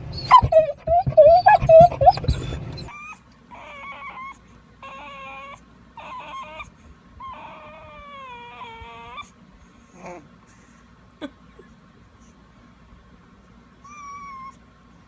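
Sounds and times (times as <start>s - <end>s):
dog whining: 0.0s - 10.3s, 13.8s - 14.7s.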